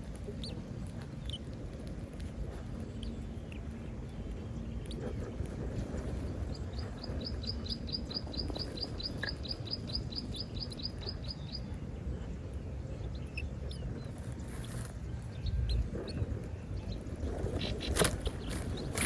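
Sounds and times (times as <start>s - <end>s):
low rumble: 0.0s - 19.0s
bird chirping: 0.3s - 1.5s, 4.5s - 11.9s, 12.9s - 19.0s.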